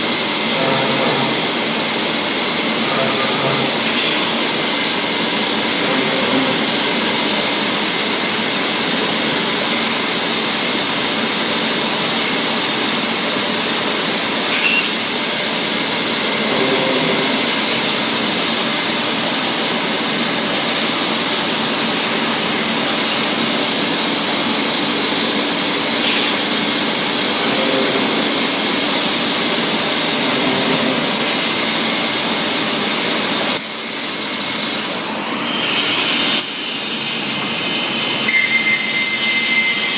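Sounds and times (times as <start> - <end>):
machining centre rushing noise: 0.0 - 39.9
spindle high whine: 0.1 - 19.4, 24.6 - 32.8.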